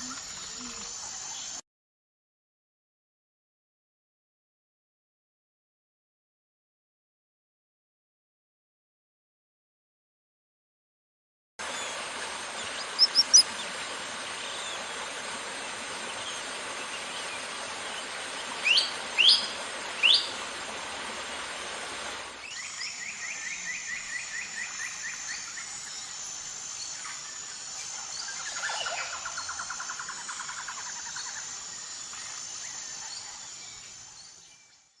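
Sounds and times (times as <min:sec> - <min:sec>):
steady rushing hiss: 0:11.6 - 0:34.7
bird trills: 0:12.7 - 0:13.6
high bird chirps: 0:12.8 - 0:13.5
rising bird whistles: 0:13.0 - 0:13.5.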